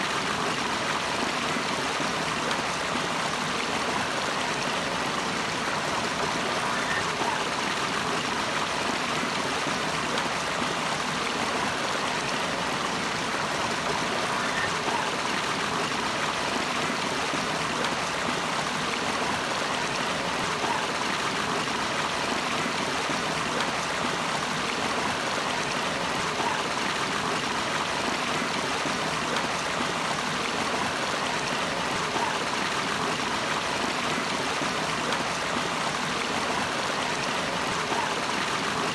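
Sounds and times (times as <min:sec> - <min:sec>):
stream water rushing: 0:00.0 - 0:38.9
water gurgles: 0:00.0 - 0:38.9.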